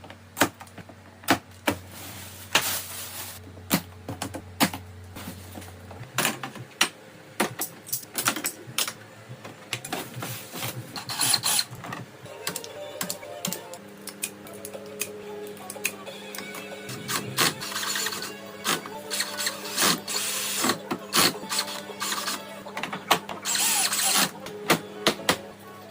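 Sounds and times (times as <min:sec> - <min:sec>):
tools clicking and clattering: 0:07.4 - 0:09.0.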